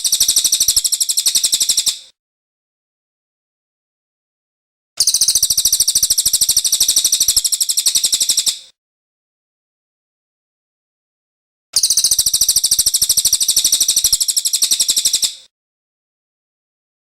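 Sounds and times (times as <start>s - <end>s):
bird singing fast trill: 0.0s - 2.1s, 5.0s - 8.7s, 11.8s - 15.5s.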